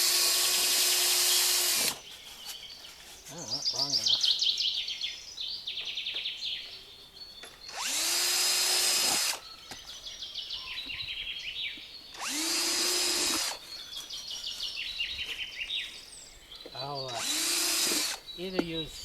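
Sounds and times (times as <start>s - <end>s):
electric drill boring: 0.0s - 2.0s, 7.7s - 9.4s, 12.1s - 13.6s, 17.1s - 18.2s
birds chirping: 0.0s - 19.0s.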